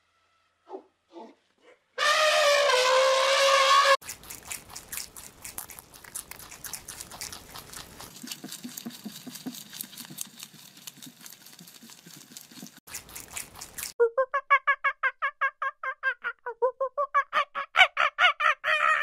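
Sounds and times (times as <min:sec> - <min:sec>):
rabbit nibbling and chewing: 0:04.0 - 0:14.0.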